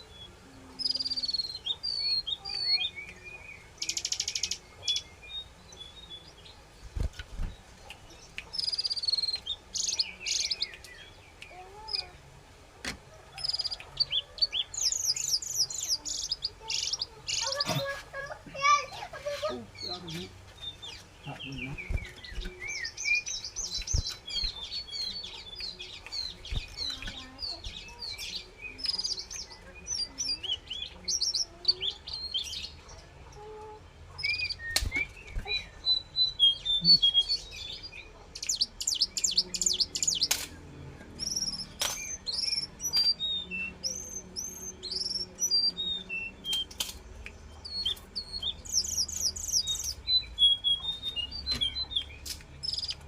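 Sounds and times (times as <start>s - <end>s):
songbird singing: 0.0s - 53.0s
fast chattering trills: 15.4s - 19.6s
sharp clicks: 46.4s - 48.4s.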